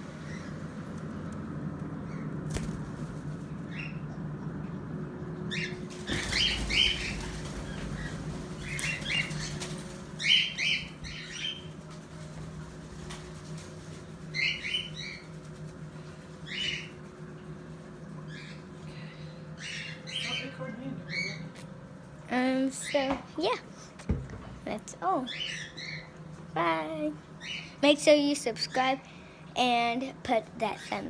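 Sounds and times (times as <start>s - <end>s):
birds chirping: 0.0s - 21.6s, 27.2s - 28.9s
wings fluttering: 0.2s - 3.9s, 5.5s - 18.8s.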